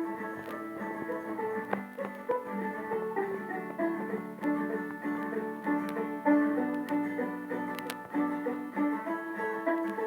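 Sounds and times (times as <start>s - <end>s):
plucked string melody: 0.0s - 10.0s.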